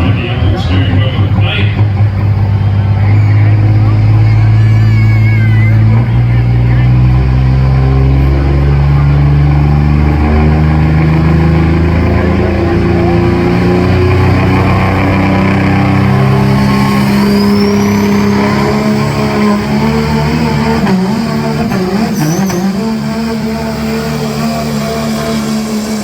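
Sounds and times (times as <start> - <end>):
truck engine under heavy load: 0.0 - 26.0
high whistle: 16.1 - 19.2, 21.7 - 23.0.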